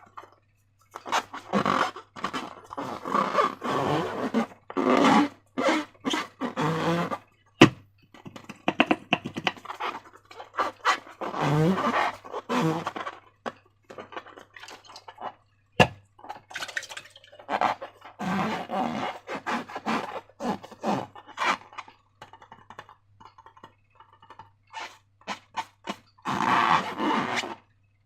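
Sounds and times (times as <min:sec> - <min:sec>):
balloon squeaks: 0:01.0 - 0:07.8, 0:08.8 - 0:13.2, 0:17.4 - 0:21.8, 0:24.8 - 0:27.6.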